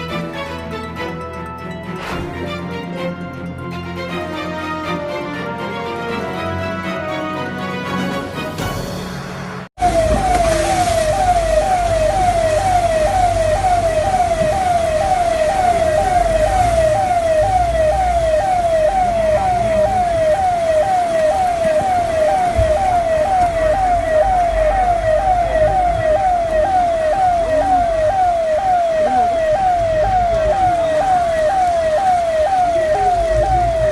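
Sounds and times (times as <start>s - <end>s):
siren yelping: 9.8s - 33.9s.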